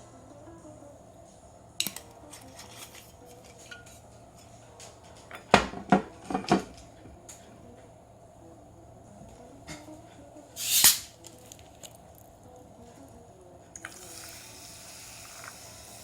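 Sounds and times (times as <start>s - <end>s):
metal cookware clinking: 1.8s - 4.0s
utensil clanking on iron griddle: 1.8s - 4.0s.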